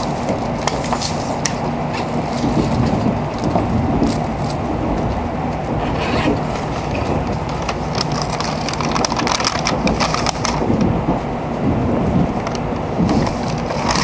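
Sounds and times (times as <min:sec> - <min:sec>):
train running rumble: 0:00.0 - 0:14.0
light clicks and rattles: 0:06.3 - 0:11.2, 0:12.1 - 0:14.0.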